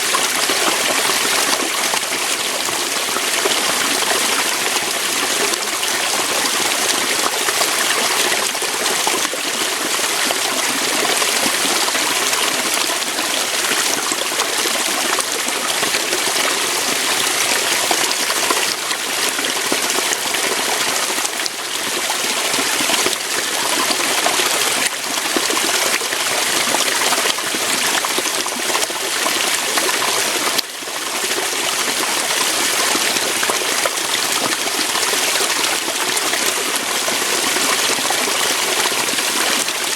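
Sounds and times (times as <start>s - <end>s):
water pouring over rocks: 0.0s - 39.9s.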